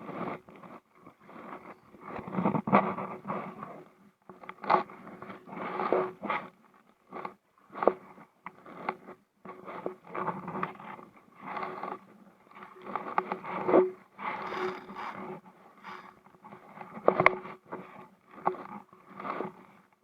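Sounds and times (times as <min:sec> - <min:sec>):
paddle scraping and knocking hull: 0:07.2 - 0:19.8.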